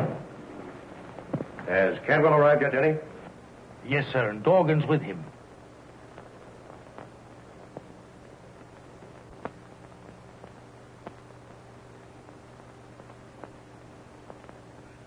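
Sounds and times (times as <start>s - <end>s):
film soundtrack hiss: 0.0s - 15.0s
low hum: 0.0s - 15.0s
sharp clicks and pops: 5.8s - 14.8s.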